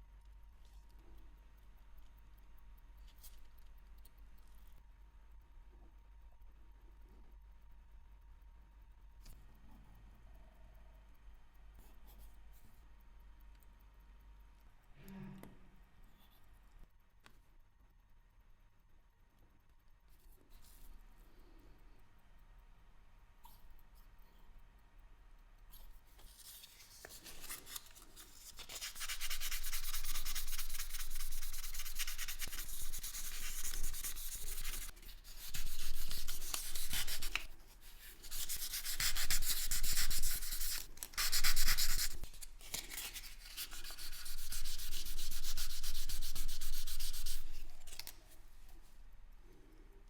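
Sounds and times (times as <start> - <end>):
rapid rubbing on hard surface: 26.4 - 48.1.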